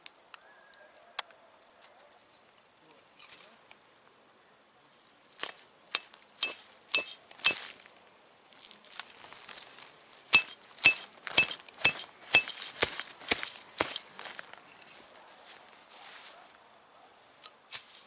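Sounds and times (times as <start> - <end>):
hammer striking metal tent peg: 5.9 - 7.9, 10.3 - 14.0.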